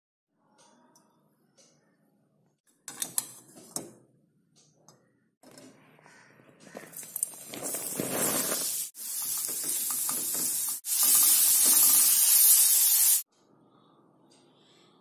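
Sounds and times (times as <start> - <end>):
vegetables sizzling in hot oil: 7.4 - 13.2.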